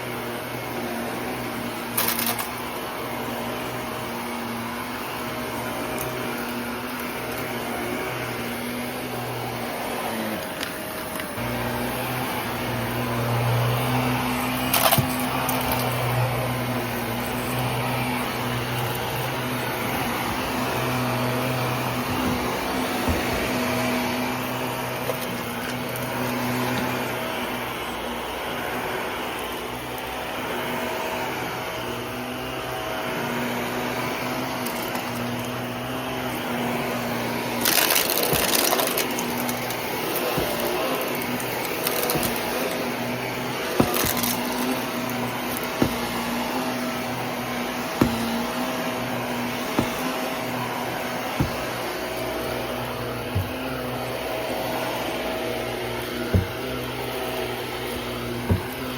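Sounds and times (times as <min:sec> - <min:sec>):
vacuum cleaner running: 0:00.0 - 0:58.9
rattling suction: 0:36.4 - 0:58.9.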